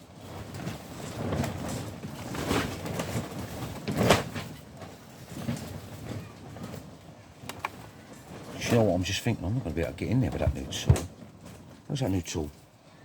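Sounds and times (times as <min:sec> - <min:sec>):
things being moved and rustled: 0:00.0 - 0:13.0
sharp knocks: 0:10.5 - 0:11.1.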